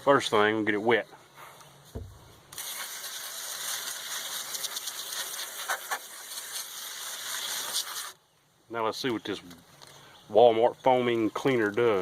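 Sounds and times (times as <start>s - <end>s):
short low thump: 1.9s - 2.3s
water spray hissing: 2.5s - 8.2s.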